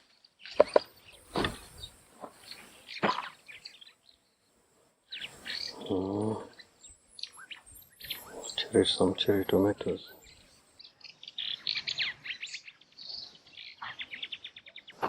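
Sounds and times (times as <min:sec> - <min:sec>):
birds chirping: 0:00.0 - 0:15.0
low voiced hum: 0:05.4 - 0:06.8.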